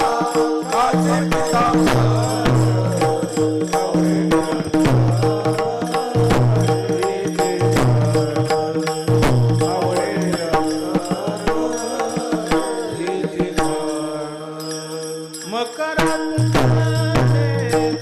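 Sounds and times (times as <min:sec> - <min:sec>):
drum strokes: 0:00.0 - 0:14.0
metallic percussion: 0:00.0 - 0:18.0.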